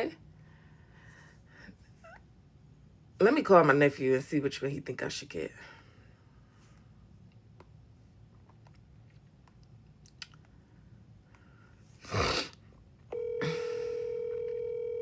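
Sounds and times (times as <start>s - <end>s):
phone ringback tone: 13.1s - 15.0s.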